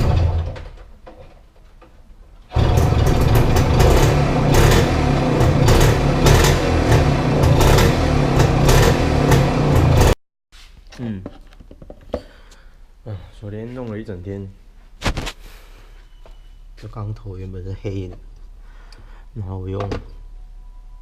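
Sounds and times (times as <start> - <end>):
machine rattling rapidly: 2.5 - 6.5.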